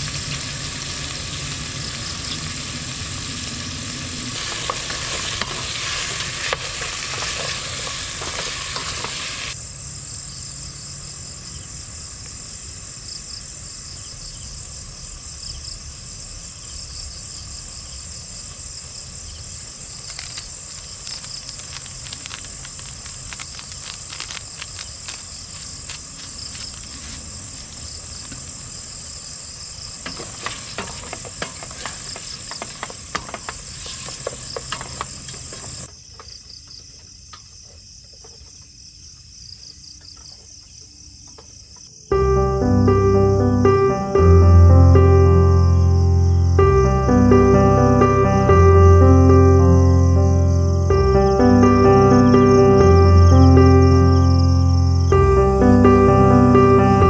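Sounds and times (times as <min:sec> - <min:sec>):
crackling clicks: 0:00.0 - 0:09.3, 0:20.0 - 0:27.2
insects chirring: 0:00.0 - 0:57.0.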